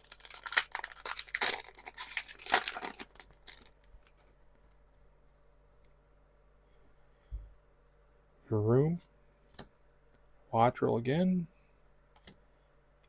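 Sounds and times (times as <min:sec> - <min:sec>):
foil wrapper tearing and crinkling: 0:00.0 - 0:04.2.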